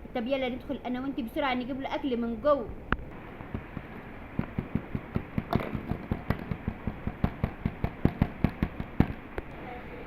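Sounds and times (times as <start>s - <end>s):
rapid sharp taps: 3.5s - 9.5s.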